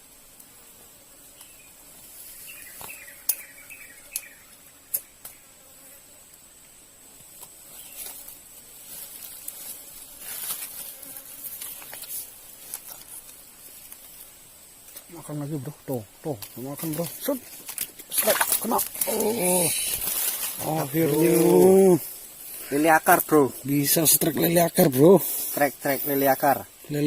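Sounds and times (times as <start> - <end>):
insects trilling: 0.0 - 27.0
rustling: 7.3 - 15.2, 16.1 - 27.0.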